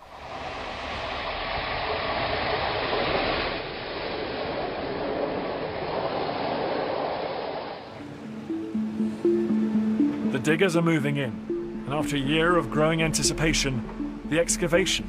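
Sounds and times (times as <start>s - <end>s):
muffled train rushing: 0.0s - 3.2s.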